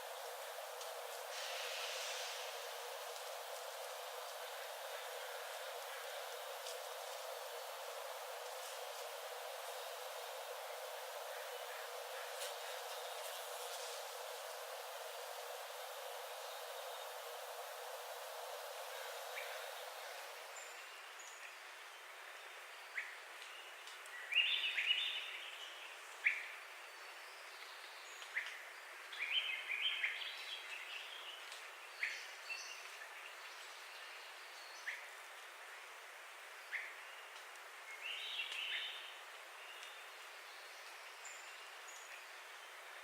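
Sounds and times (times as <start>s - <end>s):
warbling bird song: 0.0s - 20.8s
background hiss: 0.0s - 43.0s.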